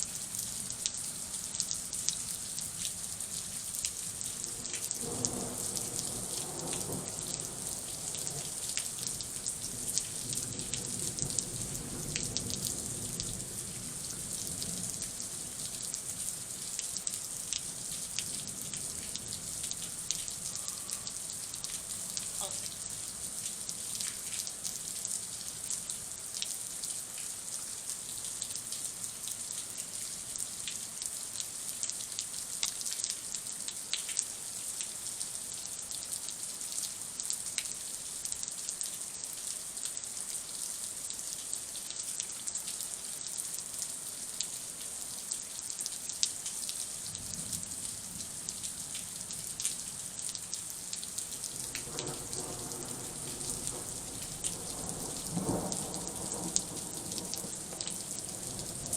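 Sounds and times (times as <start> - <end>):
heavy rain falling: 0.1 - 26.2, 44.2 - 58.9
raindrops ticking close by: 0.1 - 58.9.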